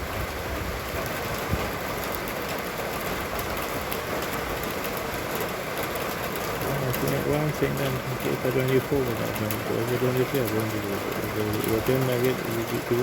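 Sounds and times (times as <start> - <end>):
rain falling in wind: 0.0 - 13.0
drops ticking: 6.2 - 13.0.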